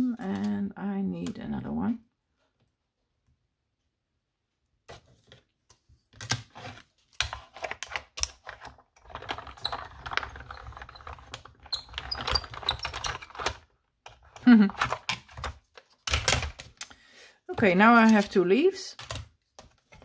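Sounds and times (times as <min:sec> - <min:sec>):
paper rustling: 0:17.6 - 0:20.0.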